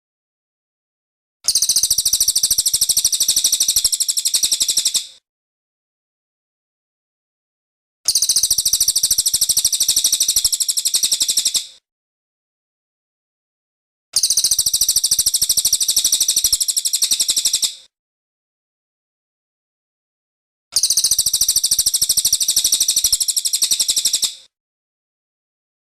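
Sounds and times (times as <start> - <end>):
bird trilling chatter: 1.5 - 5.1, 8.1 - 11.7, 14.2 - 17.8, 20.8 - 24.4.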